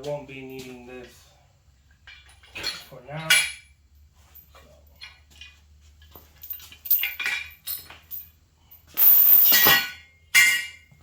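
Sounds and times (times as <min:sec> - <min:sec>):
metal tools clinking: 0:02.0 - 0:11.0.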